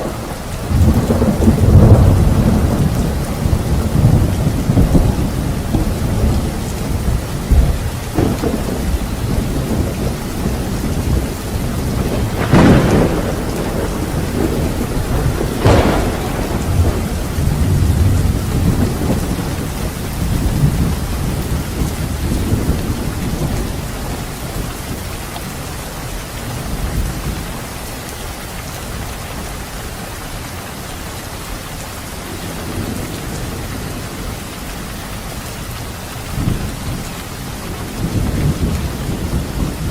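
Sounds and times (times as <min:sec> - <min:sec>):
sharp thunderclaps: 0:00.0 - 0:24.7, 0:36.3 - 0:39.9
rolling thunder: 0:00.0 - 0:25.0, 0:32.2 - 0:39.9
heavy rain: 0:00.0 - 0:39.9.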